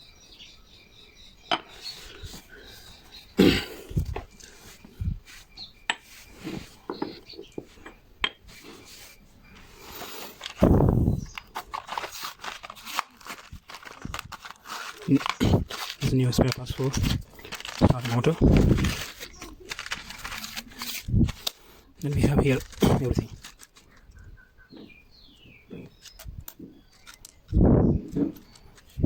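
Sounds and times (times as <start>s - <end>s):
rustling bursts: 8.5s - 24.2s
small parts clicking and knocking: 25.8s - 29.0s.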